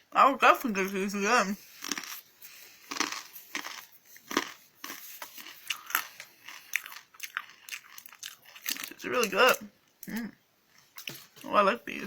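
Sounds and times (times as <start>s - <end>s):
person chewing crunchy snack: 1.6s - 9.3s.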